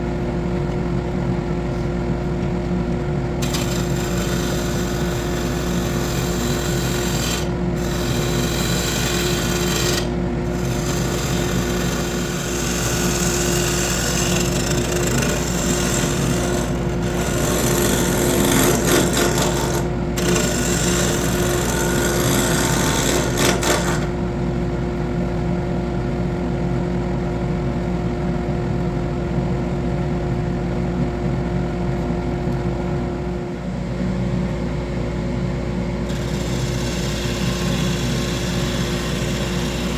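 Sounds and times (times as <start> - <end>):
wood lathe humming: 3.4 - 24.2, 36.1 - 39.9
tool scraping spinning wood: 3.4 - 24.3, 36.1 - 39.9.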